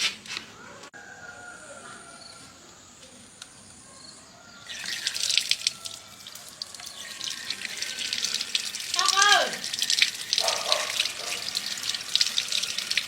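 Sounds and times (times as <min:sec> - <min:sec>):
water running and splashing: 0:04.7 - 0:13.0.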